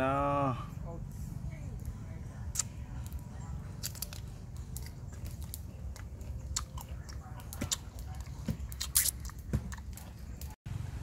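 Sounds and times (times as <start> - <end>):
wet mouth clicks: 2.5 - 2.8, 3.8 - 10.1
person chewing crunchy fruit: 2.5 - 10.6.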